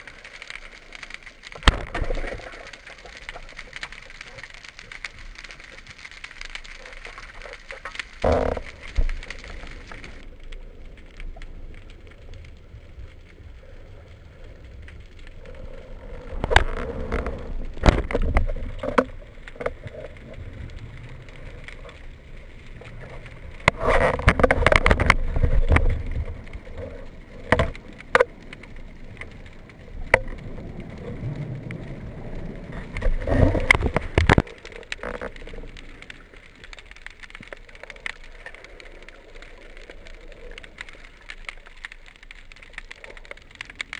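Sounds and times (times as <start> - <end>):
bubbling water rushes: 0.0 - 5.9.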